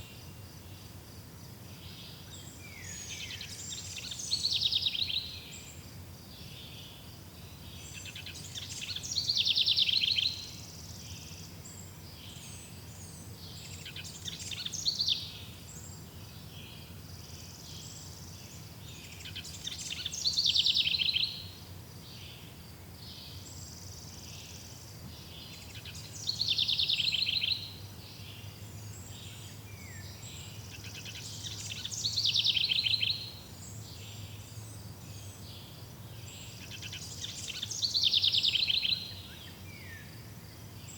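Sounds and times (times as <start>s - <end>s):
songbird trilling: 19.0s - 21.5s, 25.4s - 28.4s, 29.2s - 34.3s, 36.5s - 40.0s.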